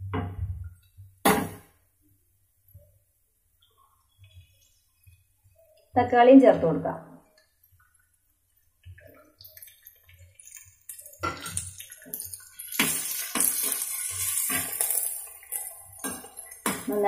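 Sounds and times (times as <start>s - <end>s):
spatula stirring and scraping: 3.6s - 6.0s, 7.3s - 17.0s
vegetables sizzling in frying pan: 10.5s - 17.0s.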